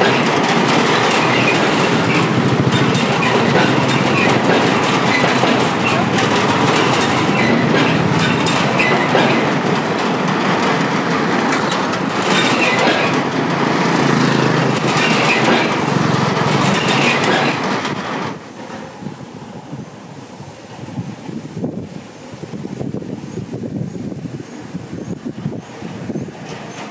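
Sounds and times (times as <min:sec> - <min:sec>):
motorbike engines: 0:00.0 - 0:18.4
steel bridge rattling under wheels: 0:00.0 - 0:19.1.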